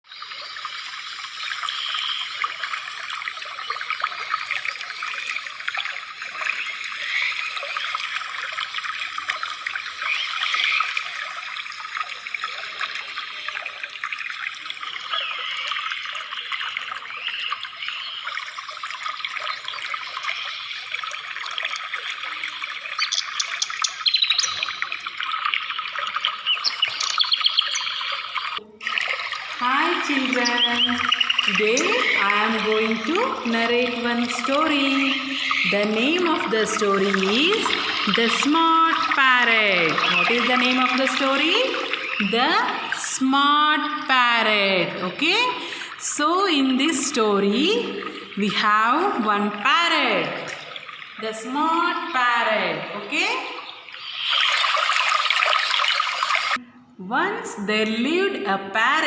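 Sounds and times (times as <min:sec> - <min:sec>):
trickling water: 0:00.0 - 0:59.0
birds chirping: 0:22.3 - 0:28.7, 0:29.6 - 0:56.5.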